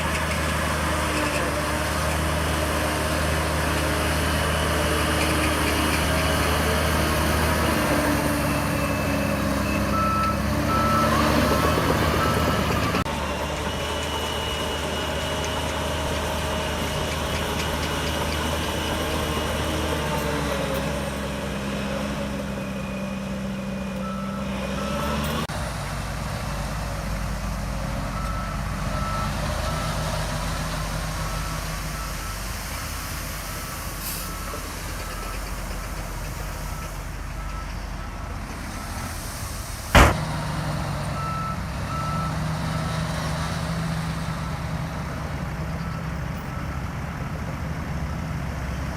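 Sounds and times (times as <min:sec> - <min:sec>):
heavy diesel machinery running: 0:00.0 - 0:48.9
reversing alarm beeping: 0:08.0 - 0:17.0, 0:22.2 - 0:25.5, 0:41.1 - 0:43.0
sharp bang: 0:39.9 - 0:40.4.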